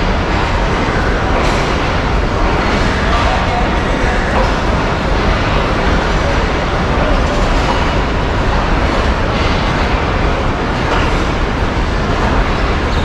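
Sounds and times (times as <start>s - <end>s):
train wheels on rail: 0.0s - 13.0s.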